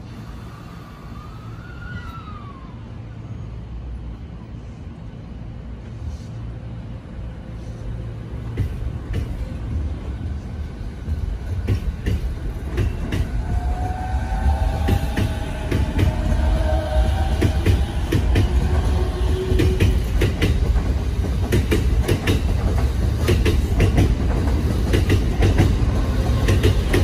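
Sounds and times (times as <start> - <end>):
train low rumble: 0.0 - 27.0
wheels clacking over rail joints: 11.0 - 27.0.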